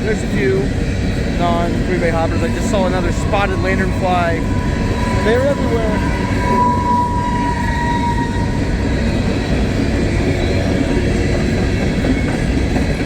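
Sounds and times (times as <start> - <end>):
steel wheels rumbling on rail: 0.0 - 13.0
thin wheel squeal: 2.8 - 9.2.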